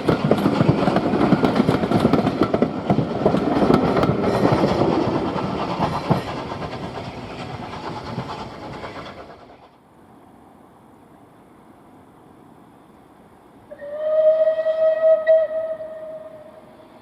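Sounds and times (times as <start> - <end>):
train wheels clattering: 0.0 - 9.8.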